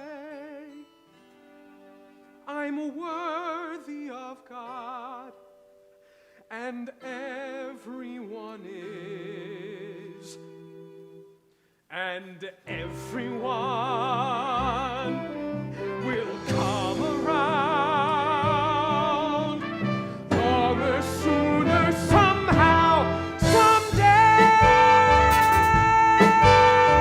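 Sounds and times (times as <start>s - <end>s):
person singing with vibrato: 0.0s - 1.0s, 2.4s - 5.5s, 6.5s - 11.2s, 11.9s - 27.0s
orchestra accompaniment: 15.0s - 27.0s.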